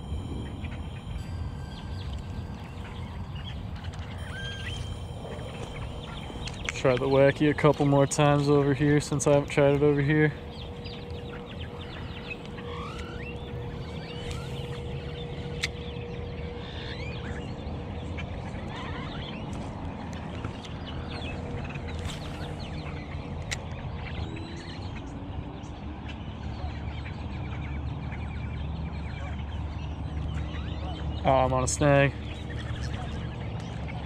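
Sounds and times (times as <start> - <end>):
flock of birds calling: 0.0 - 19.7
low rumble: 0.0 - 20.3.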